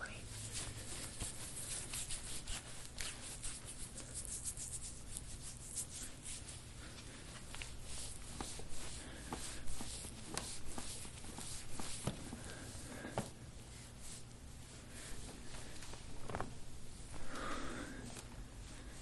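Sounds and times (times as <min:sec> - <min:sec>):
hands rubbing on skin: 0:00.3 - 0:13.2.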